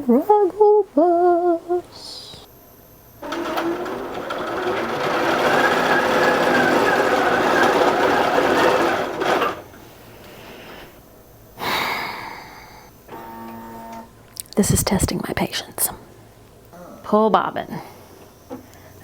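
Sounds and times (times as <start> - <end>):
quilting machine running: 3.2 - 10.2.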